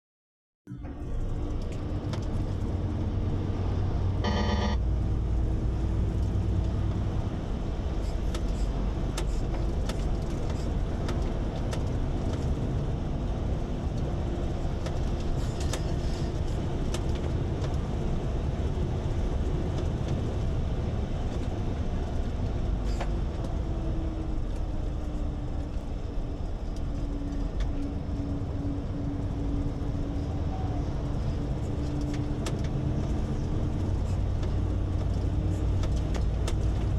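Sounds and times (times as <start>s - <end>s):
truck engine and road rumble: 0.7s - 36.9s
short beep: 4.2s - 4.8s.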